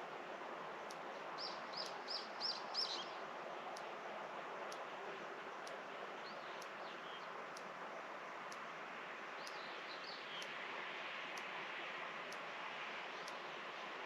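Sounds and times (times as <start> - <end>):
steady background hiss: 0.0 - 14.0
faint high ticks: 0.2 - 14.0
small birds chirping: 1.4 - 3.2, 9.4 - 10.6.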